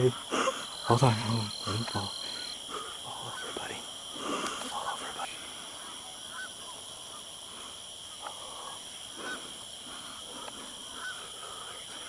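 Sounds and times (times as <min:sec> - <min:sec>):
steady high hiss: 0:00.0 - 0:12.0
short animal calls: 0:10.9 - 0:11.4.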